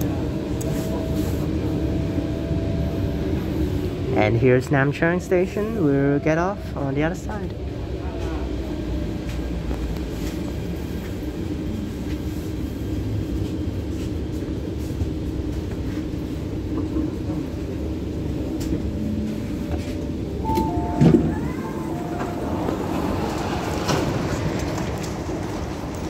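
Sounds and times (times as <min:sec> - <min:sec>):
train cabin low rumble: 0:00.0 - 0:26.0
electronic chime tones: 0:20.4 - 0:22.4.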